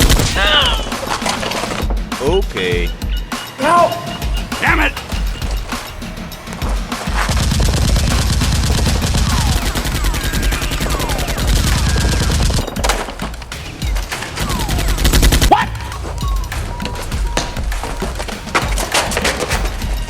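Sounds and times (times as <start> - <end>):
rapid automatic gunfire: 7.1 - 15.5
short falling whistles: 8.1 - 20.0.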